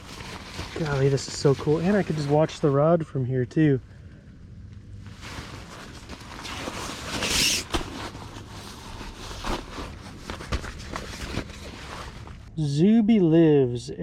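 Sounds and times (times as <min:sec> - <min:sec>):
camping gear rustling and scraping: 0:00.0 - 0:02.7, 0:05.0 - 0:12.5.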